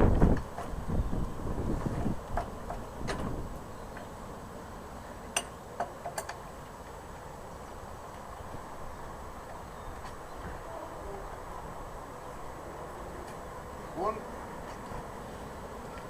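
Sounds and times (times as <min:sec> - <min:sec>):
wind buffeting microphone: 0:00.0 - 0:03.7.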